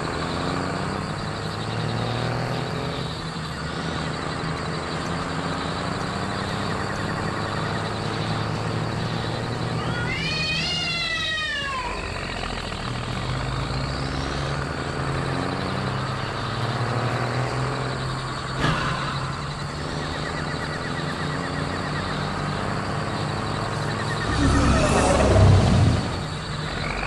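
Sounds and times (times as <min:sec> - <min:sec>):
cartoon truck engine hum: 0:00.0 - 0:27.0
wavering pitched call: 0:09.8 - 0:12.5, 0:23.8 - 0:27.0.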